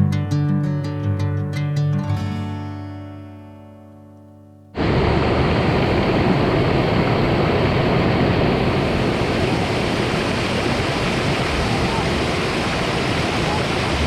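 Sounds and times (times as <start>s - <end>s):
acoustic guitar music: 0.0s - 4.8s
waterfall rushing: 4.8s - 14.0s.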